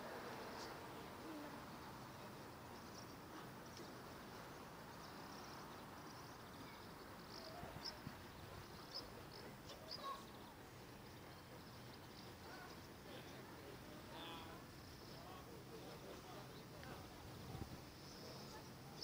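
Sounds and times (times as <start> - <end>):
faint outdoor hiss: 0.0 - 19.0
small birds chirping: 1.8 - 13.4.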